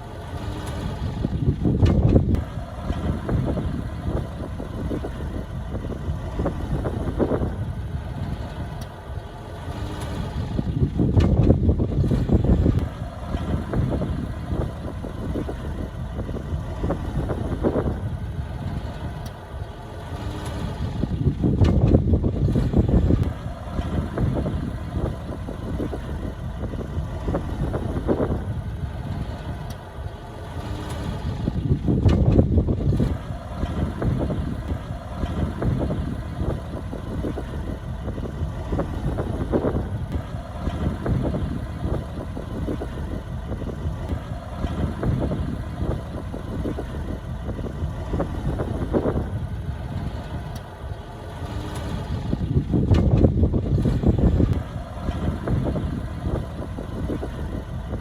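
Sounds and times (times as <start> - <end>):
diesel engine running: 0.0 - 58.0
machinery knocks and clatter: 10.9 - 14.0, 21.4 - 24.0, 31.8 - 36.0, 51.5 - 55.6.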